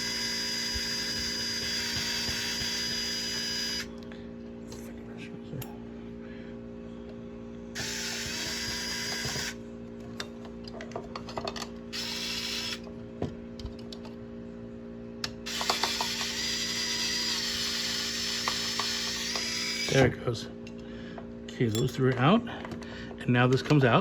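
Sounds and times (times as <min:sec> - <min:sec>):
power screwdriver running: 0:00.0 - 0:03.9, 0:07.8 - 0:09.6, 0:11.9 - 0:12.8, 0:15.5 - 0:20.0.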